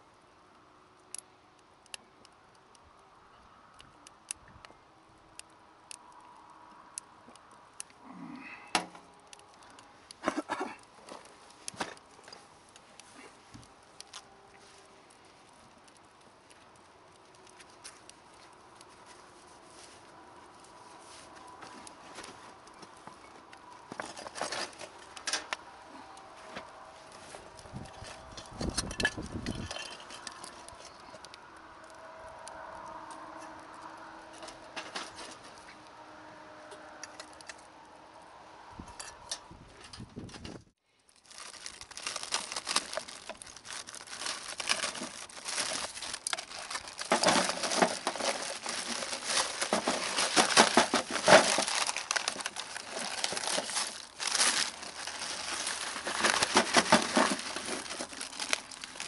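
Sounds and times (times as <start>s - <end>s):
crinkling and rustling handling: 8.8s - 36.0s, 39.8s - 59.0s.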